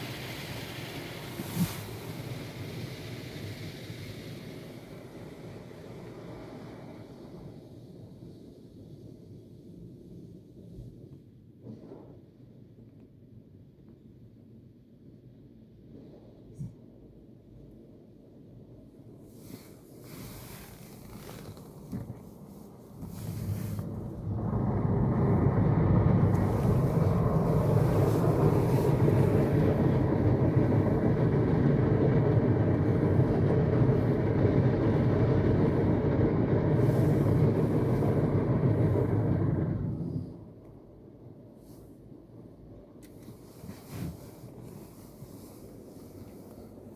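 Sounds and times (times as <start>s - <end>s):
car wash machinery rumbling: 0.0s - 7.3s, 19.3s - 41.5s.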